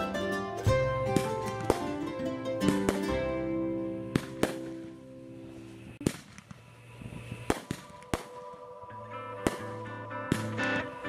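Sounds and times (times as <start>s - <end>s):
fireworks bangs: 1.1s - 3.3s, 4.1s - 5.0s, 5.8s - 8.7s, 9.4s - 10.7s.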